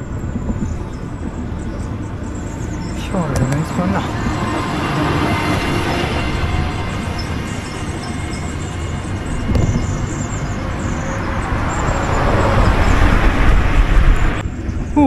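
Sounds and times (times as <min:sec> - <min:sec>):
road noise: 0:00.0 - 0:15.0
wind buffeting microphone: 0:00.0 - 0:15.0.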